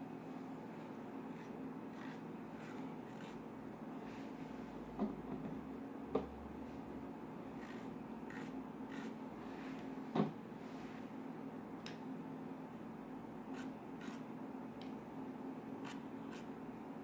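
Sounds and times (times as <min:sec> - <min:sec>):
soft knocks: 0:10.1 - 0:10.4.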